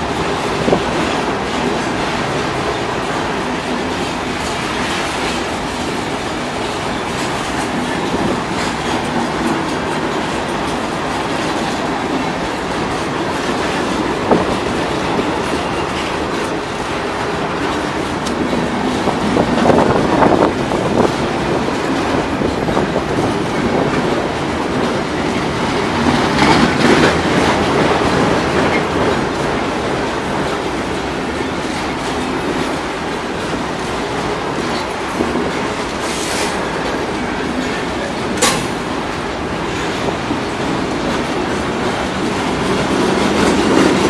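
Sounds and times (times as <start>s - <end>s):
steel wheels rumbling on rail: 0.0s - 44.0s
wheels clacking over rail joints: 0.0s - 44.0s
sharp click: 38.4s - 38.8s.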